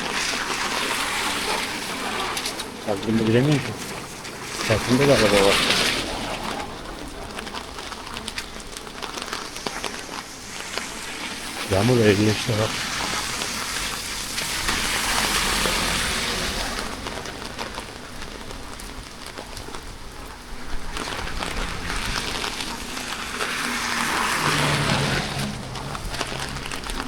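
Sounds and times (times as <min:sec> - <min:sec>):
rain falling: 0:00.0 - 0:27.0.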